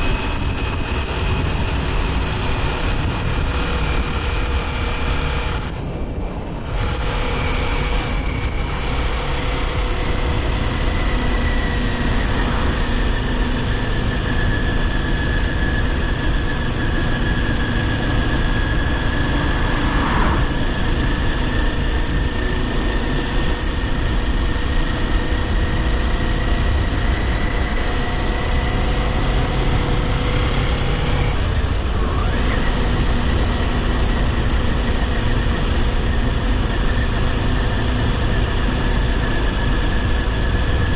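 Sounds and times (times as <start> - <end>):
motorcycle engine running: 0.0 - 40.9
wind and road rush: 0.0 - 40.9.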